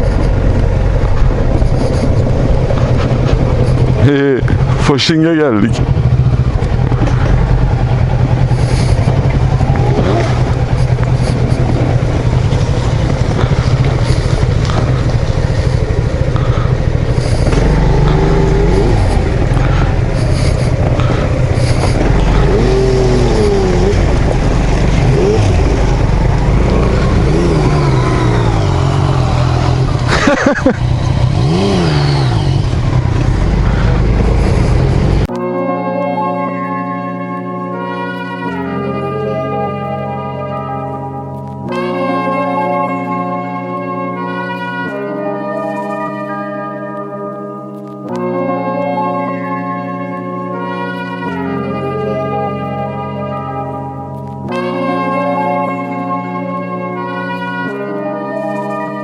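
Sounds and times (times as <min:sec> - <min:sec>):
wind noise on microphone: 0:00.0 - 0:04.9, 0:05.8 - 0:35.3
scooter engine hum: 0:00.0 - 0:35.4.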